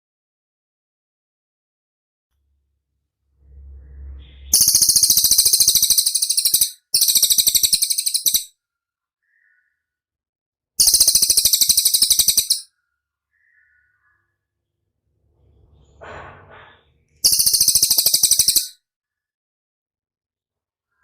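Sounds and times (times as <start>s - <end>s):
songbird high-pitched trill: 4.3s - 8.5s, 10.8s - 12.6s, 17.2s - 18.7s.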